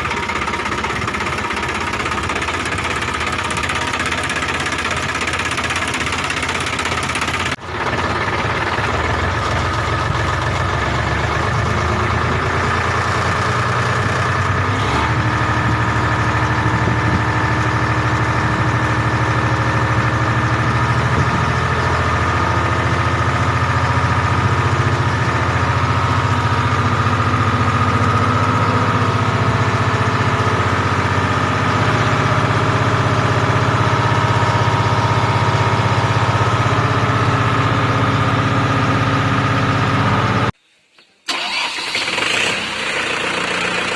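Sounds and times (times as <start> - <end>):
tractor diesel engine idling: 0.0 - 40.6, 41.3 - 43.9.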